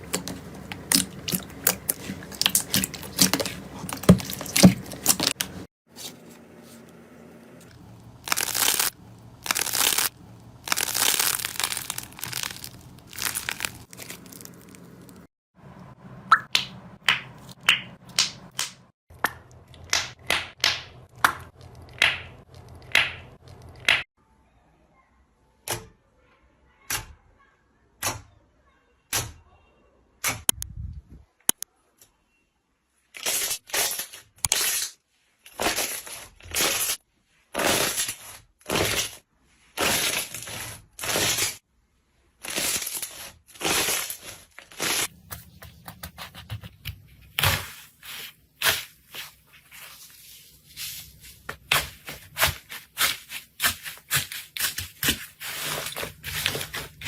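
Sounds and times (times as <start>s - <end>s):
slime popping and squishing: 0.0s - 5.6s, 8.2s - 15.2s.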